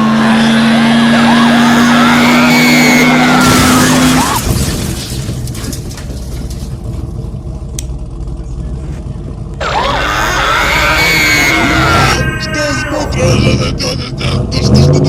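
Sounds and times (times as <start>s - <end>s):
low engine rumble: 0.0s - 15.0s
tyres squealing: 0.2s - 5.5s, 9.6s - 13.3s.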